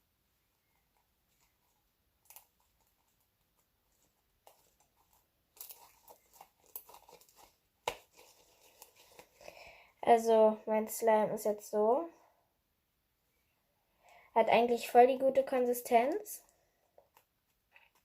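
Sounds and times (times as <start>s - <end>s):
sticky slime crackling and tearing: 4.5s - 9.3s.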